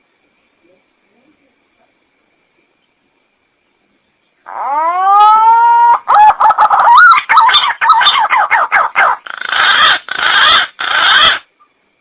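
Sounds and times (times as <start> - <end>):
harsh noisy bird bursts: 4.4 - 11.5.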